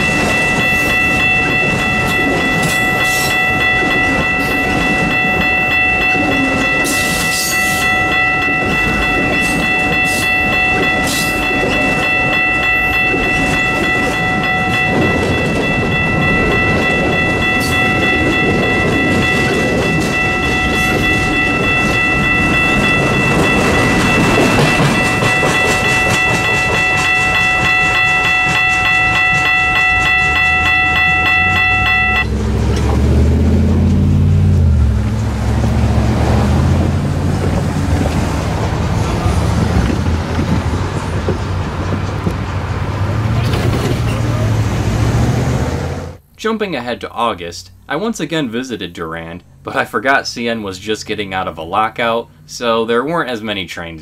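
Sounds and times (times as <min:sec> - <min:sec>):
high ringing tone: 0:00.0 - 0:32.5
train cars clickety-clack: 0:00.0 - 0:46.3.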